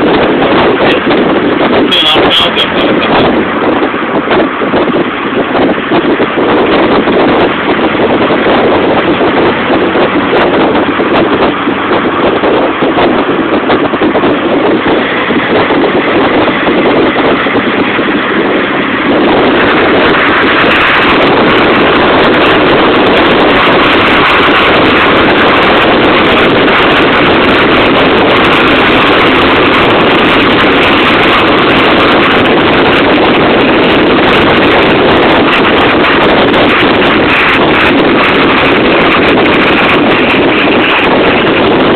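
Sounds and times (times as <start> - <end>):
car engine roaring: 0.0 - 41.9
rushing wind: 0.0 - 41.9.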